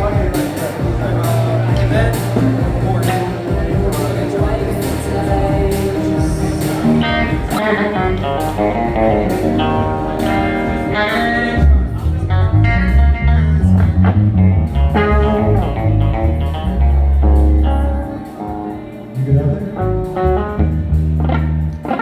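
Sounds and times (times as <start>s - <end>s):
drum hits: 0.0s - 7.6s
bass guitar: 0.0s - 22.0s
electric guitar lines: 0.0s - 22.0s.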